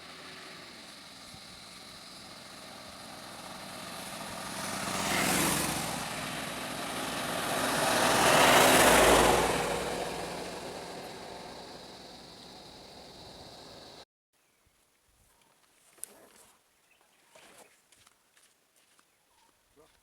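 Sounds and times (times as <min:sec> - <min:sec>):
vehicles driving past: 0:00.0 - 0:14.0.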